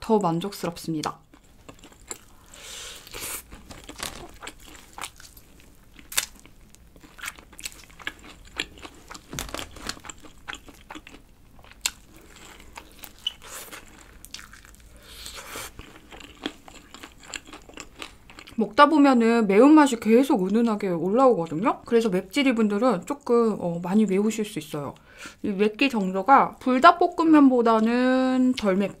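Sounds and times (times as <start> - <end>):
chewing: 1.1 - 18.6
crunching fried chicken: 1.6 - 18.5.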